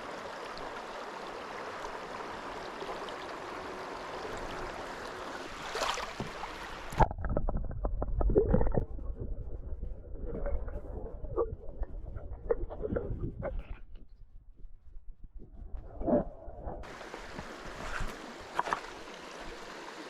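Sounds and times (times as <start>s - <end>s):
river water running: 0.0s - 7.1s, 16.8s - 20.0s
muffled underwater gurgling: 6.2s - 14.1s.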